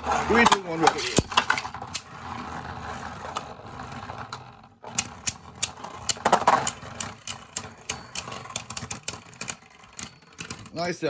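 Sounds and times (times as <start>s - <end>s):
scraping plastic clash: 0.2s - 2.1s.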